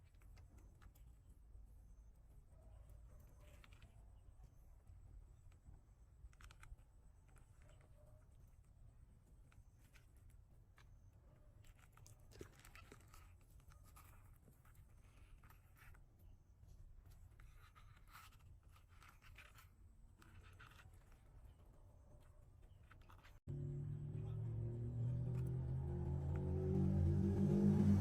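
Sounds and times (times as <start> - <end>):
low hum: 23.5 - 28.0.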